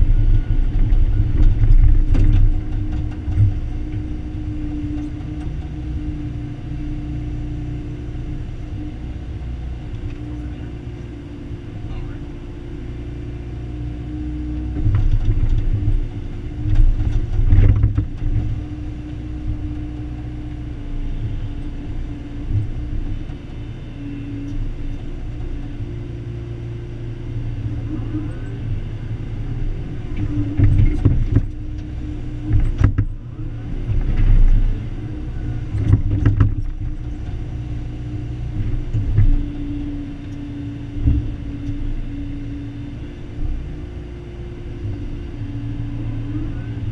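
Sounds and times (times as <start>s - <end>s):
excavator diesel engine: 0.0s - 46.9s.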